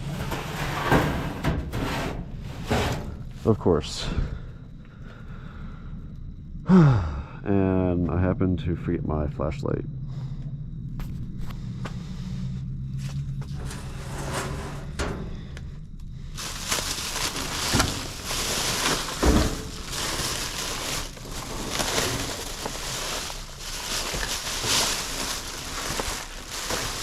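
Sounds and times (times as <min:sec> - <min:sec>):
thumps of items shifted: 0:00.0 - 0:03.6, 0:13.1 - 0:15.7, 0:16.4 - 0:27.0
low steady hum: 0:00.0 - 0:27.0
plastic bags rustling: 0:16.3 - 0:27.0.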